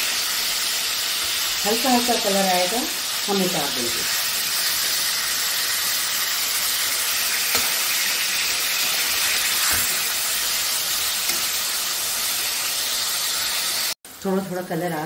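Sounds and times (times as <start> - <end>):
fruit sizzling in hot fat: 0.0 - 15.0.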